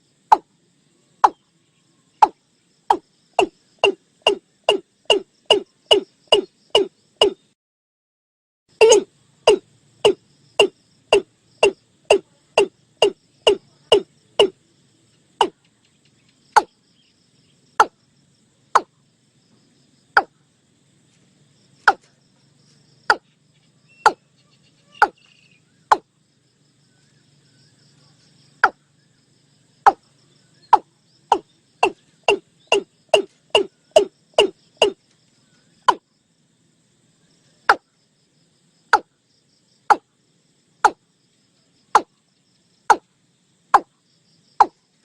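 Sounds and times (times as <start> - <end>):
watercock calling: 2.2 - 7.4, 8.8 - 14.5, 30.7 - 35.0.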